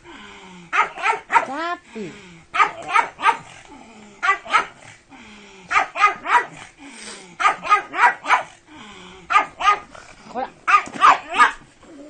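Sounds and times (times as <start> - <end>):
dog barking excitedly: 0.7 - 1.6, 2.5 - 3.6, 4.2 - 4.9, 5.7 - 6.6, 7.4 - 8.6, 9.3 - 9.9, 10.6 - 11.6.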